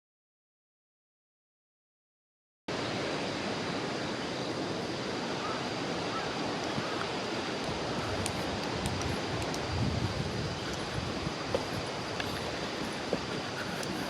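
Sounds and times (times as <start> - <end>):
steady rushing outdoor ambience: 2.7 - 14.0
faint ticks: 6.6 - 14.0.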